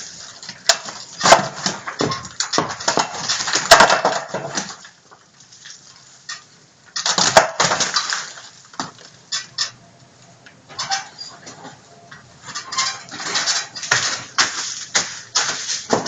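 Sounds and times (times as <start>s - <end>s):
bricks and rubble clattering: 0.0s - 5.0s, 5.6s - 9.8s, 12.4s - 16.0s.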